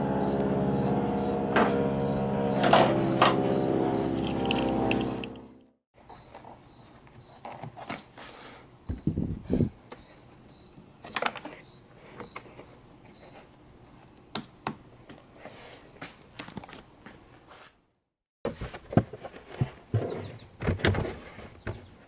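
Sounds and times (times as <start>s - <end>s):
insects chirping: 0.2s - 17.9s.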